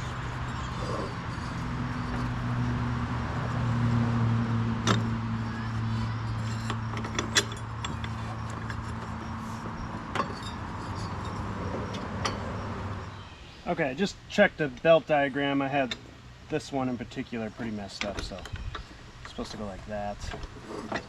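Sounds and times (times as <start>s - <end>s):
sharp metallic clinks: 6.1s - 13.2s.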